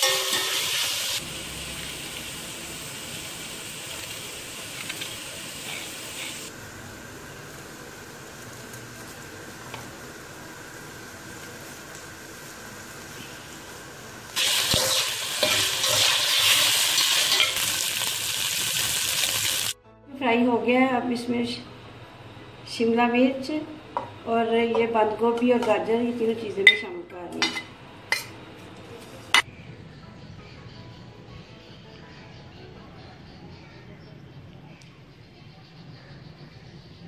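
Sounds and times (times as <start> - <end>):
chicken sizzling in a pan: 0.0 - 19.8.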